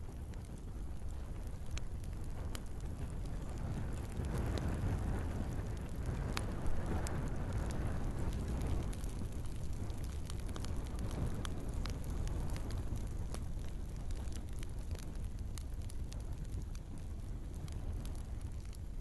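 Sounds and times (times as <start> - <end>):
fire rumbling: 0.0 - 19.0
logs crackling and popping: 0.0 - 19.0.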